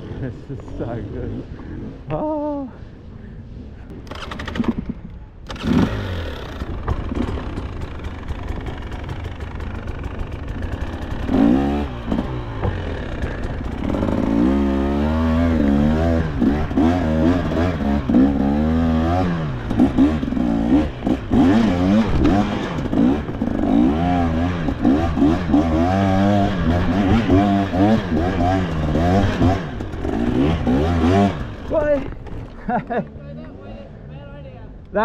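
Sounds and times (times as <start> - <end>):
dirt bike engine revving: 5.5 - 32.4.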